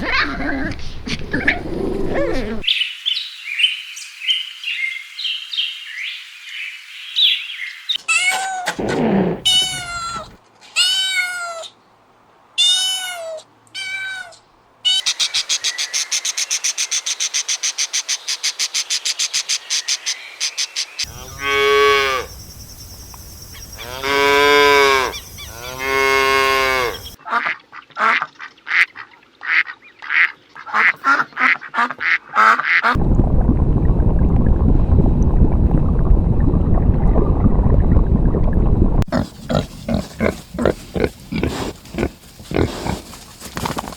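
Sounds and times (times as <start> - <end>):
animal calls: 0.0 - 2.7
meow-like calls: 9.4 - 11.8, 12.6 - 15.1.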